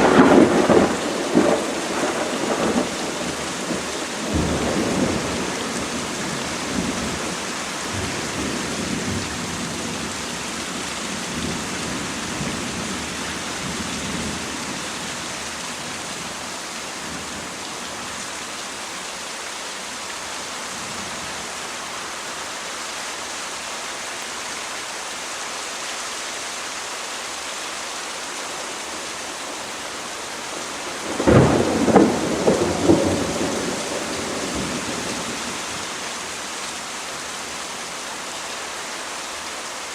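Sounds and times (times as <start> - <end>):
loud thunderclap: 0.0 - 5.5, 31.0 - 35.0
thunder rolling: 0.0 - 7.3, 30.8 - 35.3
rain hiss: 0.0 - 39.9.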